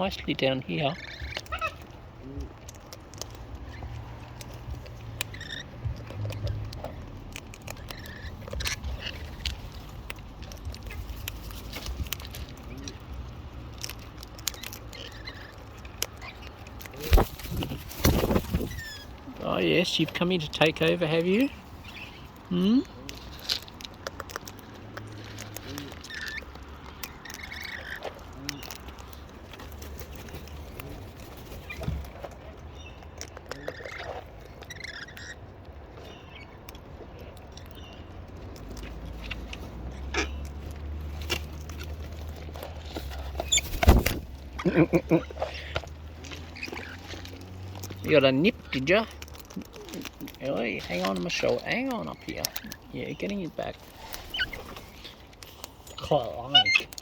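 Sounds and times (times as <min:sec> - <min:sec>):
beaks clicking and crunching food: 0:00.0 - 0:57.0
cockatoos squeaky calls: 0:00.9 - 0:01.9, 0:05.2 - 0:05.8, 0:17.4 - 0:19.2, 0:33.5 - 0:35.4, 0:39.8 - 0:40.6, 0:43.1 - 0:44.1, 0:46.4 - 0:47.2, 0:54.0 - 0:55.2, 0:55.9 - 0:57.0.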